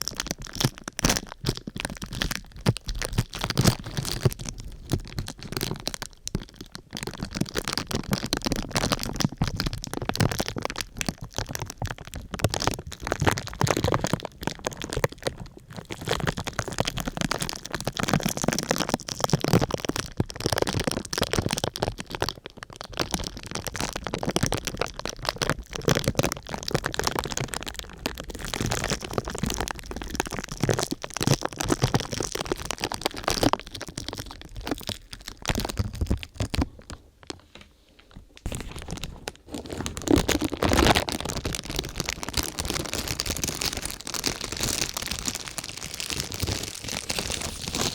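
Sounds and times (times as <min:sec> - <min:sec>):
sheet material crumpling: 0:38.4 - 0:47.9.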